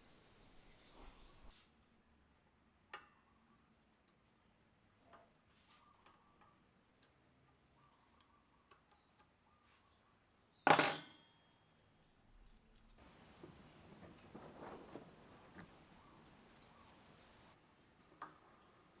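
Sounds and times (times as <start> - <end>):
loud ringing metal clank: 10.7 - 12.0.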